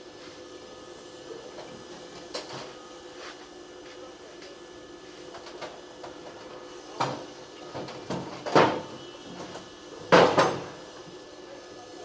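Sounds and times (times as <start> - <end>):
knocks and clunks of objects: 7.0 - 10.8.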